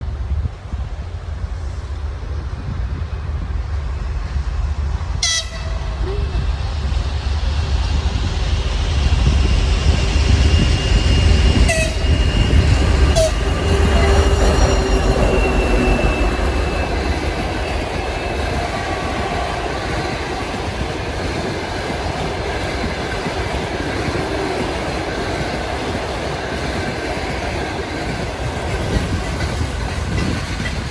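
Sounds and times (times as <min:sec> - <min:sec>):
diesel train engine rumble: 0:00.0 - 0:30.9
locomotive horn: 0:05.2 - 0:06.2, 0:11.6 - 0:12.5, 0:13.1 - 0:17.0.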